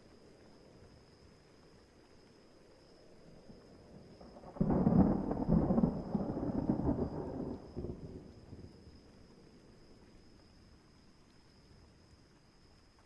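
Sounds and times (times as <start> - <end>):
faint steady background noise: 0.0 - 13.0
thunder rumbling: 4.2 - 8.8.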